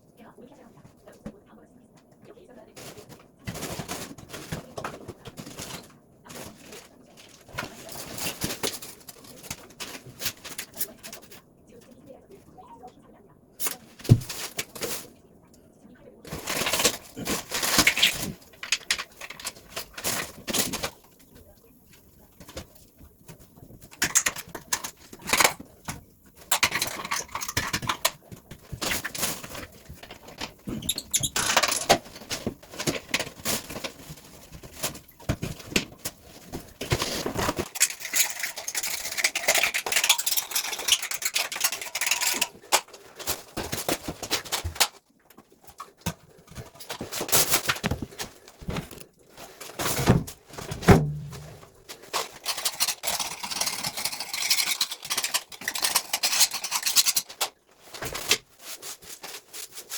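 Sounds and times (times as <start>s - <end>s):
tools clicking and knocking: 23.8s - 25.7s, 26.4s - 33.4s, 36.9s - 42.8s, 52.2s - 57.6s.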